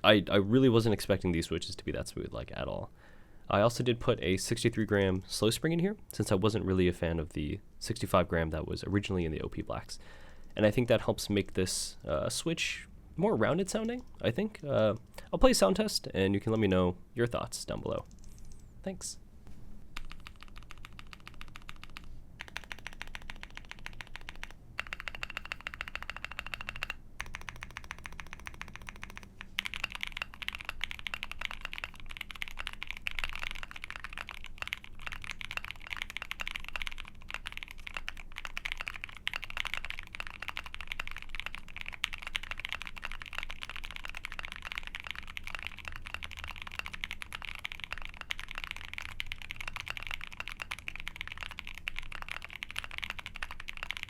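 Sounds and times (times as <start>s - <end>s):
mechanical keyboard typing: 20.0s - 54.0s.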